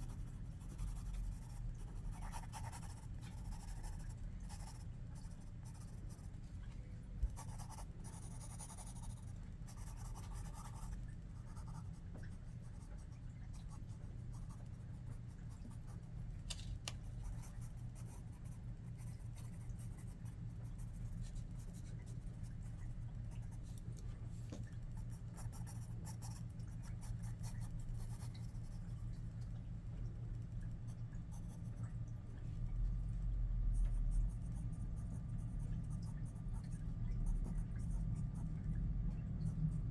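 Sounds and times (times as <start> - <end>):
pencil scratching on paper: 0.0 - 6.2
steady low hum: 0.0 - 39.9.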